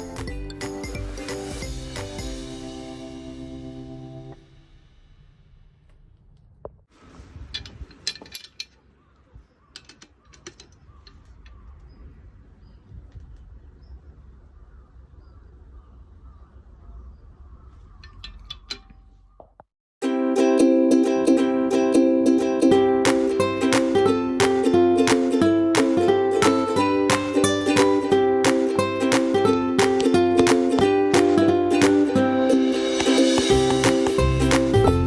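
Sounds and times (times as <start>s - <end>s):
low steady rumble: 2.7s - 8.0s
hand tools clicking on metal: 7.5s - 8.9s, 9.7s - 11.6s, 18.0s - 19.1s.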